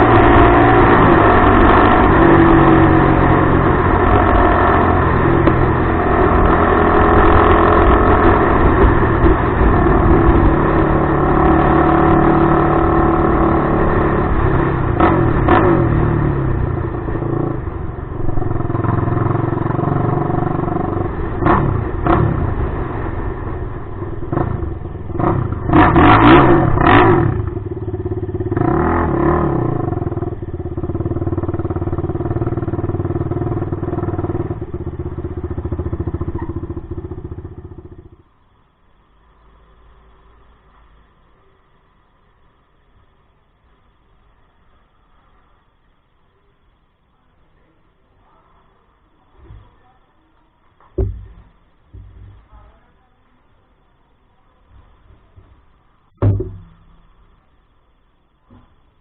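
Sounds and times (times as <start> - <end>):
quad engine revving: 0.0 - 38.1.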